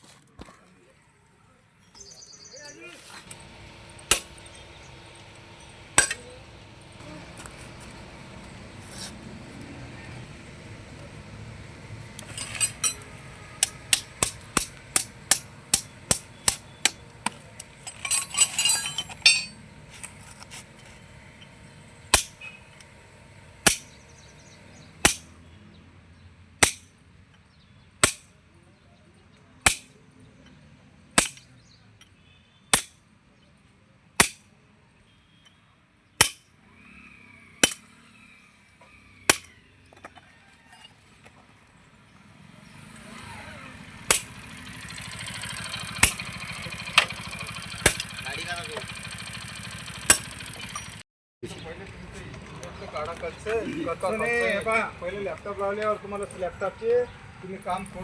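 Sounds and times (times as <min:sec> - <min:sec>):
hammer striking metal: 0:04.1 - 0:04.4, 0:06.0 - 0:06.4, 0:12.2 - 0:19.6, 0:22.1 - 0:22.5, 0:23.6 - 0:24.0, 0:25.0 - 0:25.4, 0:26.6 - 0:26.9, 0:28.0 - 0:28.3, 0:29.7 - 0:29.9, 0:31.2 - 0:31.5, 0:32.7 - 0:33.0, 0:34.2 - 0:34.5, 0:36.2 - 0:36.5, 0:37.6 - 0:37.9, 0:39.3 - 0:39.6, 0:44.1 - 0:44.4, 0:46.0 - 0:49.0, 0:50.0 - 0:51.0
rattling clatter: 0:05.6 - 0:06.3, 0:12.2 - 0:22.5, 0:44.1 - 0:51.0.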